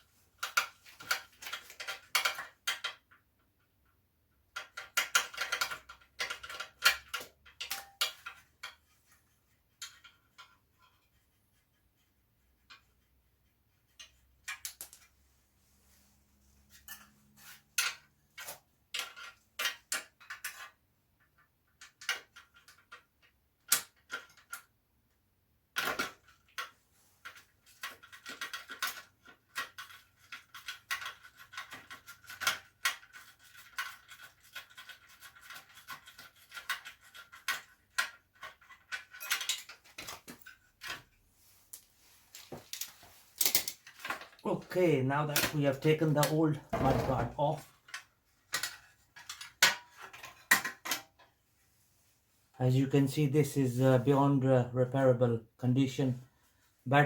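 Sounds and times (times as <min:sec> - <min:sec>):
metal tools and bolts clicking: 0:27.7 - 0:41.0.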